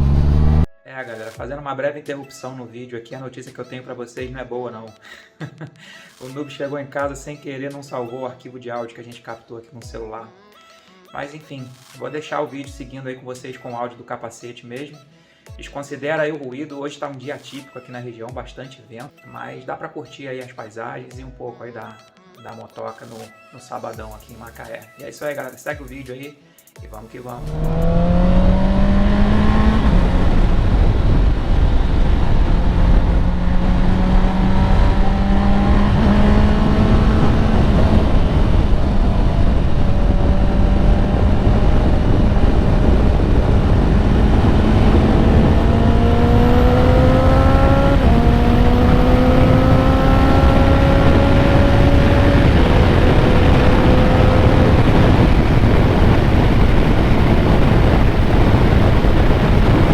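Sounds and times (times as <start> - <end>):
motorcycle engine revving: 0.0 - 0.7, 27.4 - 59.9
wind noise: 27.4 - 59.9.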